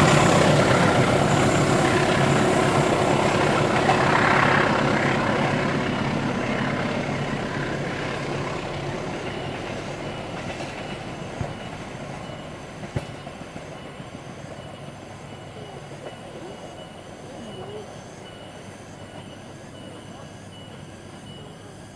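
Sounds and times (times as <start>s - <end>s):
train wheels clattering on rails: 0.0s - 17.8s.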